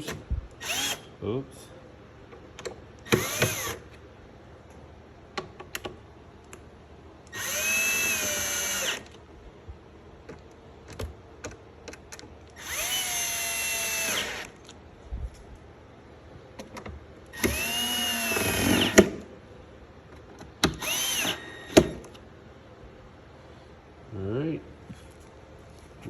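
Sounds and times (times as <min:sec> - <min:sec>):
power drill driving screws: 0:00.0 - 0:01.1, 0:03.0 - 0:03.9, 0:07.3 - 0:09.1, 0:12.6 - 0:14.6, 0:17.3 - 0:19.2, 0:20.7 - 0:22.1.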